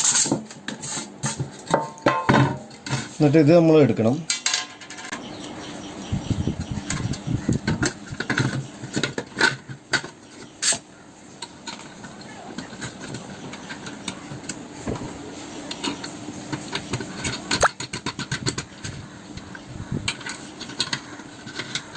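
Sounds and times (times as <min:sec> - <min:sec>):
hard parts clicking and knocking: 0:11.4 - 0:21.9.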